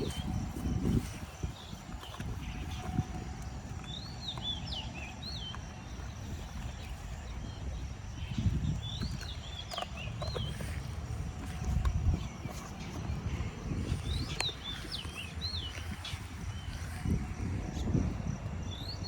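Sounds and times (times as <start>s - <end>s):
wind rumble on microphone: 0.0s - 19.0s
songbird whistling song: 18.6s - 19.0s.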